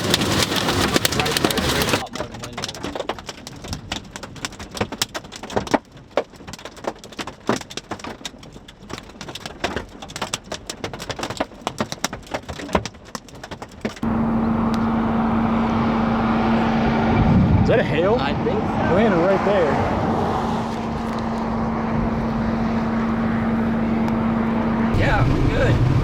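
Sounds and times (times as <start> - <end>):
hail and rain striking a vehicle: 0.0 - 14.0
steady low hum: 14.0 - 19.2, 19.8 - 26.0.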